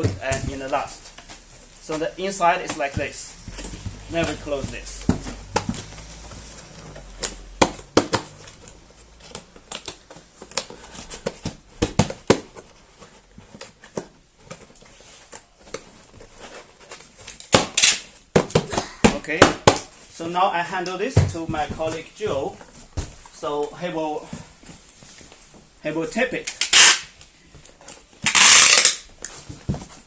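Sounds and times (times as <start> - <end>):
cardboard scraping rustle: 0.0 - 17.4
cardboard and paper rustling: 0.0 - 17.5
cardboard flaps folding: 0.0 - 20.0.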